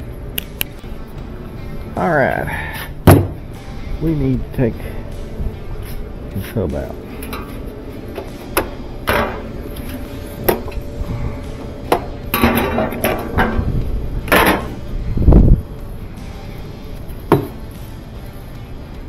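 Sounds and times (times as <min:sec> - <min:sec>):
heavy deep thump: 0:03.0 - 0:03.5
tools clanking on metal: 0:11.9 - 0:14.8.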